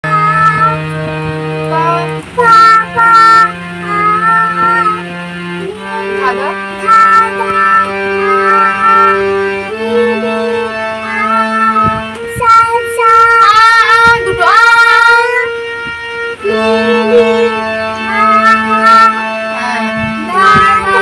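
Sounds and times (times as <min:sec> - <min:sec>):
woman singing: 0:00.0 - 0:01.0, 0:01.6 - 0:05.0, 0:05.6 - 0:15.6, 0:16.3 - 0:21.0
children singing: 0:00.0 - 0:21.0
harmonium drone: 0:00.0 - 0:21.0.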